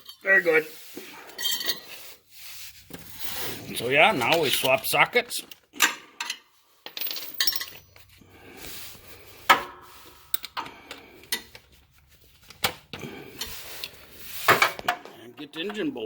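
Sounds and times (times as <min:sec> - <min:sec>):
steel sockets clinking: 0:05.5 - 0:08.0.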